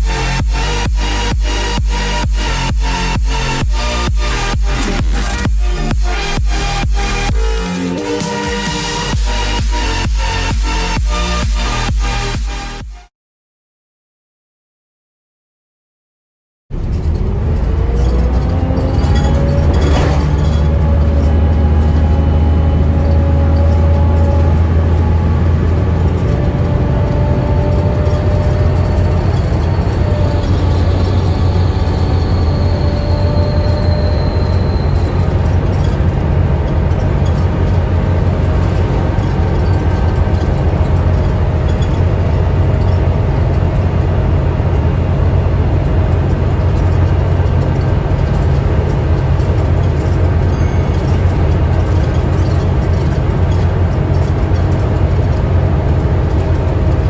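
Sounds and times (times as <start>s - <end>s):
bus diesel engine humming: 16.7s - 57.0s
high whine: 16.7s - 57.0s.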